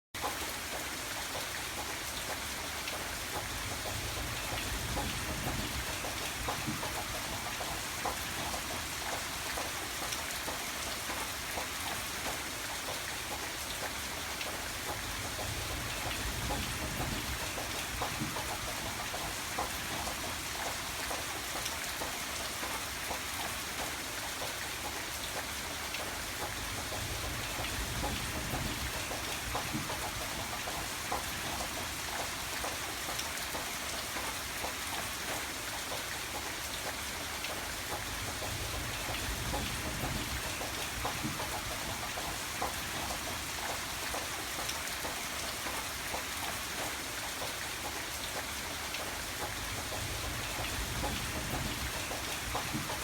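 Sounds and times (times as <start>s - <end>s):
rain drops on hard surface: 0.2s - 53.0s.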